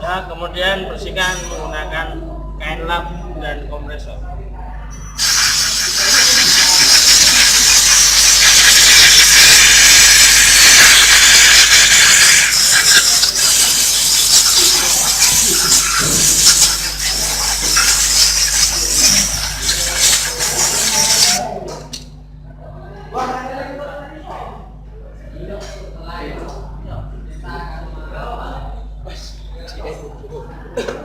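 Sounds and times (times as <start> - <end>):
compressed air hissing from blow gun: 5.2 - 21.4.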